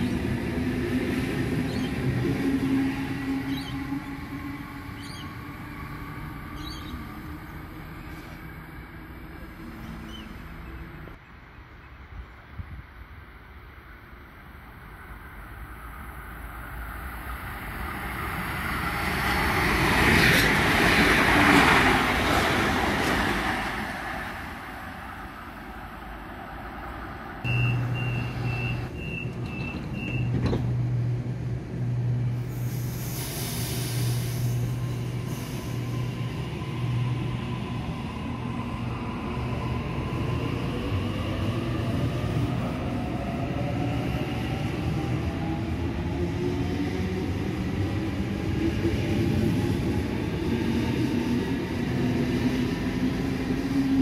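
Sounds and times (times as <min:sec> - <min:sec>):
train passing rumble: 0:00.0 - 0:54.0
high door-warning beeps: 0:27.5 - 0:30.4.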